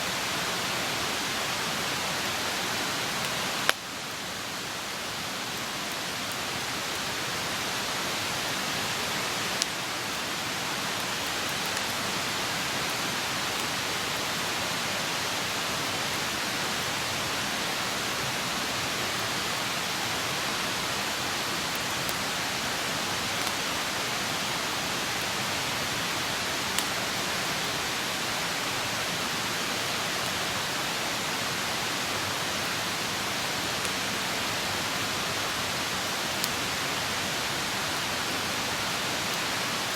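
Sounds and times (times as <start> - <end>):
campfire burning with hiss: 0.0 - 39.9
fire crackles and pops: 3.1 - 7.5, 9.4 - 10.3, 10.9 - 14.3, 19.1 - 25.5, 26.6 - 27.8, 35.2 - 38.2.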